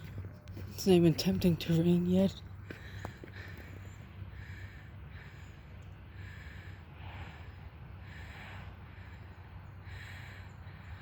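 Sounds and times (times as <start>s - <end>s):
low steady rumble: 0.0s - 11.0s
person breathing heavily: 2.6s - 11.0s.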